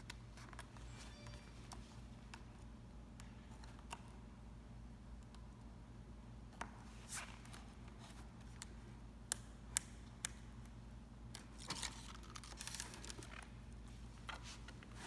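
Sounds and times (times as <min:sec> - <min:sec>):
rustling and scraping: 0:11.6 - 0:15.0.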